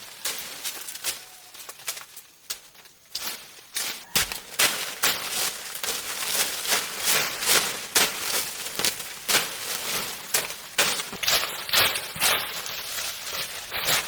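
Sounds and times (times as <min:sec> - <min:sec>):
footsteps crunching through dry leaves: 0:00.0 - 0:14.0.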